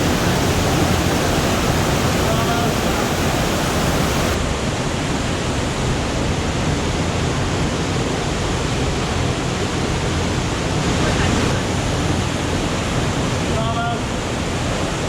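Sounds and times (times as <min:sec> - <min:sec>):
rushing falling water: 0:00.0 - 0:04.4.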